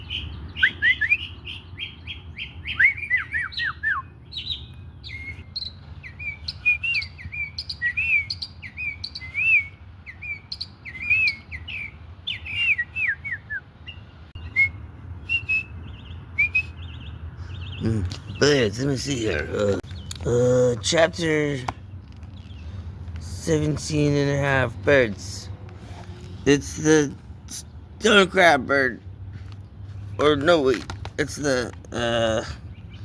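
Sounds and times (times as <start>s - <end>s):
bird whistled notes: 0.0s - 1.9s, 2.6s - 17.1s
bird chirps: 0.0s - 20.6s, 21.2s - 25.2s.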